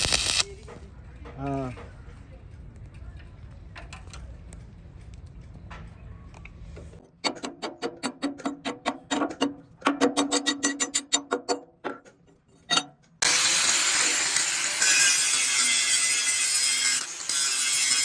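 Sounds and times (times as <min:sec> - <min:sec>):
ringing metal taps: 0:07.2 - 0:13.2.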